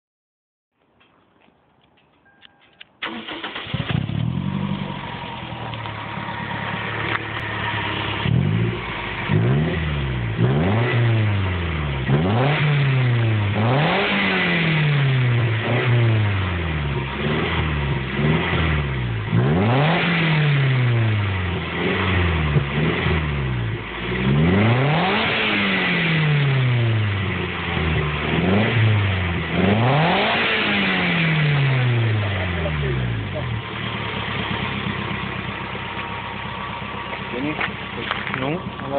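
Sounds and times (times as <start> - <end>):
car engine revving: 3.0 - 38.9.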